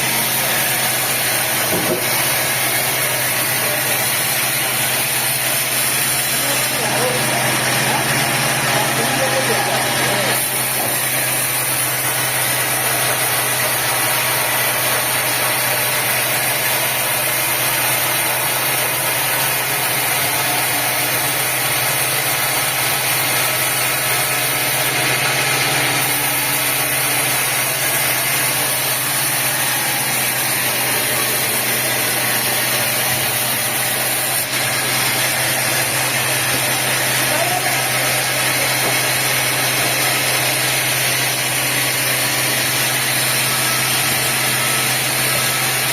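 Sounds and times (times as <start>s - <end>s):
sawmill machinery drone: 0.0s - 45.9s.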